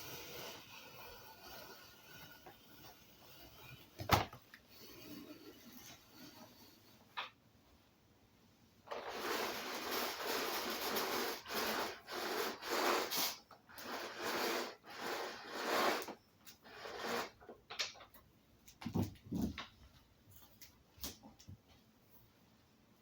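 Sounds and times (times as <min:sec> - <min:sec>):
rough rubbing strokes: 0:00.0 - 0:04.0, 0:09.0 - 0:17.4.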